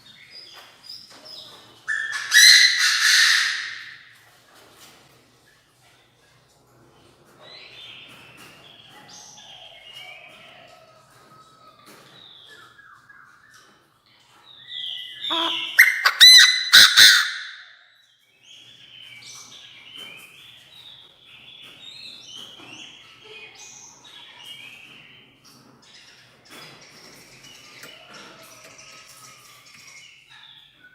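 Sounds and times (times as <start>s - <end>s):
bird harsh calling: 15.1s - 17.8s.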